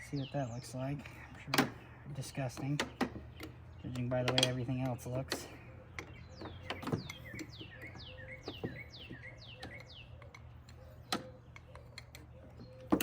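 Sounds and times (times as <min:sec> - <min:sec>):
clicks and knocks of hand work: 0:02.5 - 0:13.0
songbird whistles: 0:06.1 - 0:13.0.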